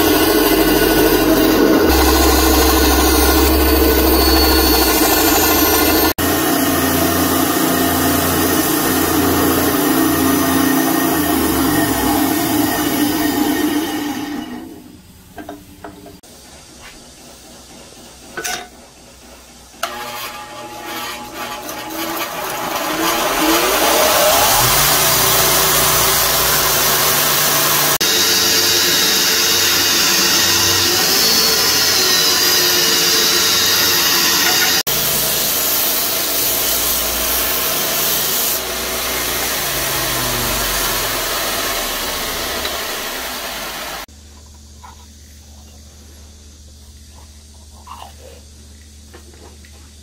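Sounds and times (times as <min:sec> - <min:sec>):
motor low hum: 0:00.0 - 0:13.7, 0:38.6 - 0:44.0
belt grinder grinding wood: 0:00.0 - 0:14.8, 0:19.8 - 0:44.1.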